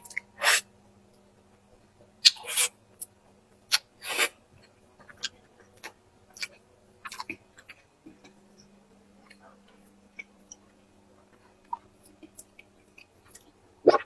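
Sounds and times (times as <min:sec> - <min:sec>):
wet chewing clicks: 0:03.7 - 0:10.6
food crunching: 0:04.6 - 0:09.4.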